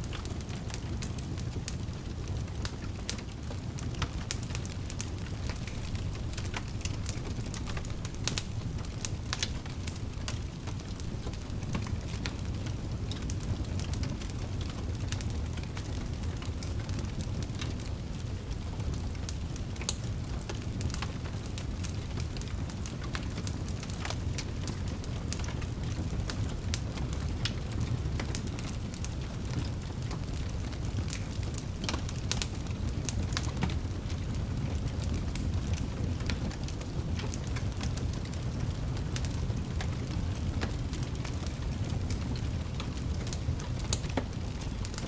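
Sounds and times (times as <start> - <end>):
fire crackling and popping: 0.0 - 45.0
low rumble of flames: 0.0 - 45.0.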